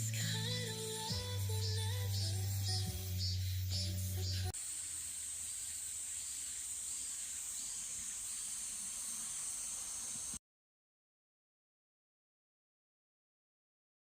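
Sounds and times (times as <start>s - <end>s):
high-pitched hiss: 0.0s - 10.4s.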